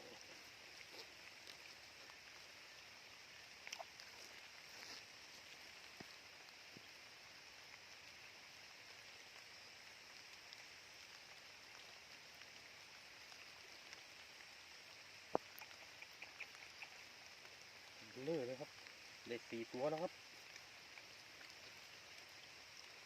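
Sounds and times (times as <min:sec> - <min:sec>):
faint high-pitched hiss: 0:00.0 - 0:23.0
small ticks: 0:00.1 - 0:23.0.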